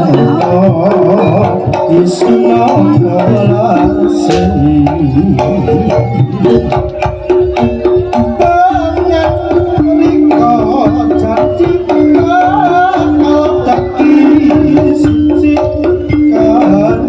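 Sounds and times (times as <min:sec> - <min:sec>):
fast hand-drum beat: 0:00.0 - 0:17.0
person singing: 0:00.0 - 0:17.0
sustained melodic instruments: 0:00.0 - 0:17.0.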